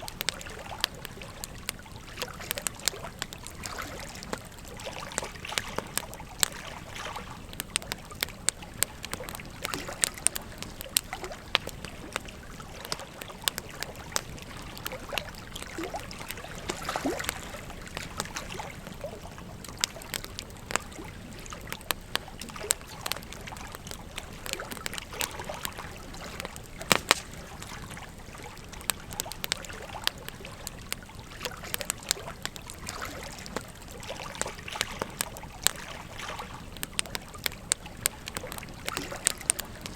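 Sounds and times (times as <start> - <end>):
wood fire crackling and popping: 0.0 - 39.9
river water flowing: 9.0 - 21.8.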